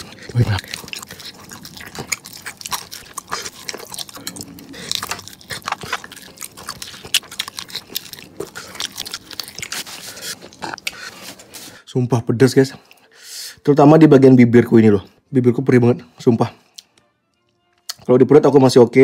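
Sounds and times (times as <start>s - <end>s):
crunching fried chicken: 0.0s - 11.0s.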